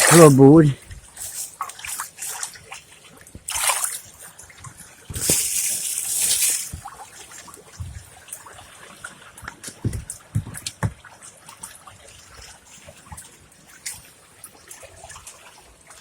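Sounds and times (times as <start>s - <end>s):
water splashing and sloshing: 0.0s - 16.0s
water trickling and dripping: 0.0s - 16.0s.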